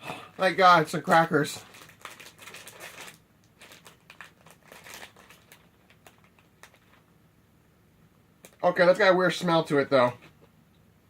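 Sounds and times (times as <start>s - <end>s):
plastic wrapper crinkling: 0.4s - 7.1s.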